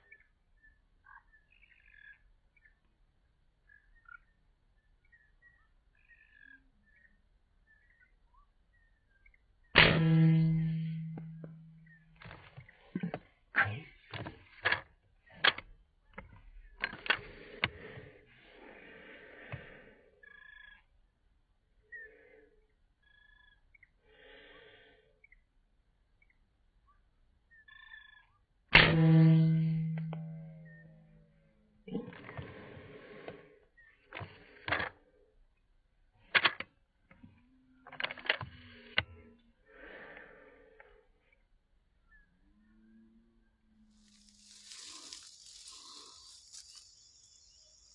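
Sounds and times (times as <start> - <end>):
rustling noise: 44.0 - 47.8.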